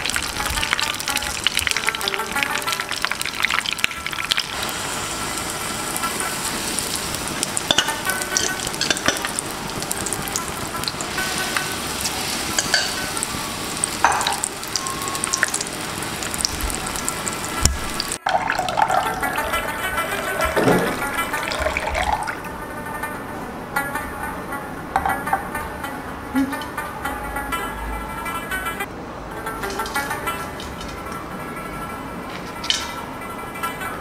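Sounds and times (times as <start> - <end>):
batter deep-frying in hot oil: 0.0 - 22.4.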